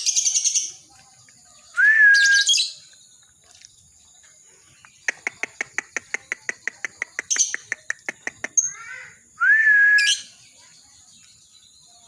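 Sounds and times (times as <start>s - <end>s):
loud whistled bird note: 1.8s - 2.8s, 9.4s - 10.3s
lovebird chattering: 4.9s - 9.0s.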